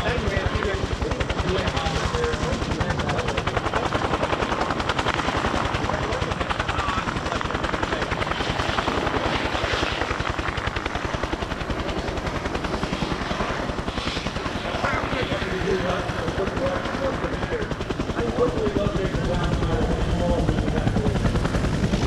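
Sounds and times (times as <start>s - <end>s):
helicopter rotor beating: 0.0s - 22.0s
turbine engine whine: 0.0s - 22.0s.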